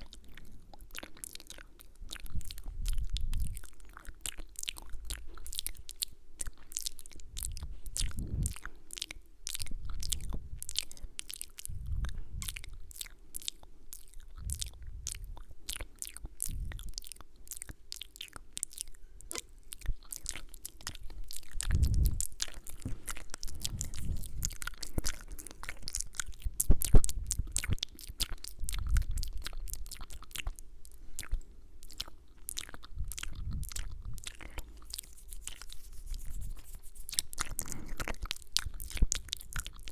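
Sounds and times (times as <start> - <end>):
wet mouth clicks and smacks: 0.0 - 39.9
soft low thuds: 21.6 - 24.8.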